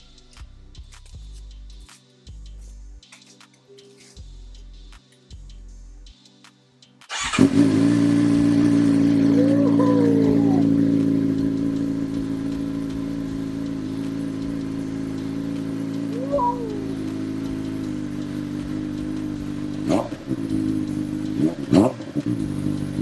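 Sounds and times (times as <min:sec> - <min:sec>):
motorcycle engine starting and idling: 0:07.1 - 0:23.0.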